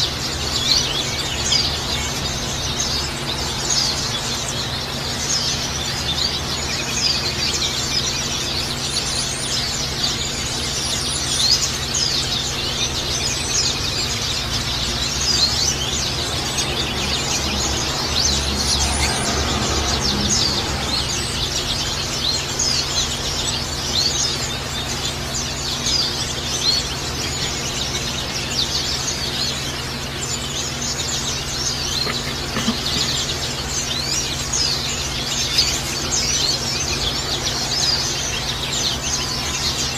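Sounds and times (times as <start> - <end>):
birds chirping high-pitched twittering: 0.0 - 39.9.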